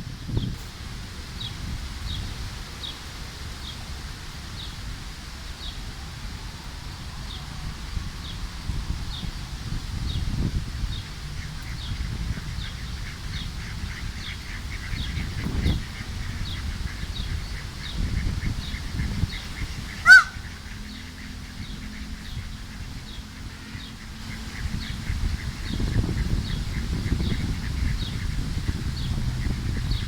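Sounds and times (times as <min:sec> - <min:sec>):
wind rumbling on microphone: 0:00.0 - 0:30.0
bird honking call: 0:13.7 - 0:26.0.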